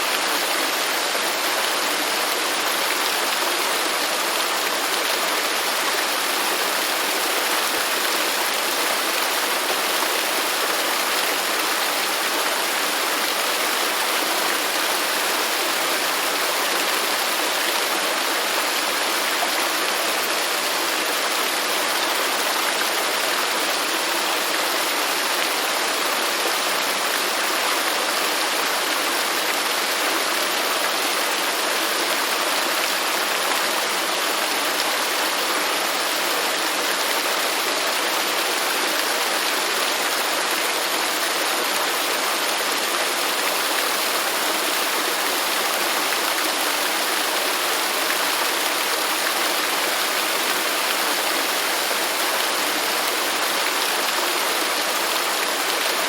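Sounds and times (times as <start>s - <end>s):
waterfall splashing: 0.0s - 22.8s, 38.4s - 56.0s.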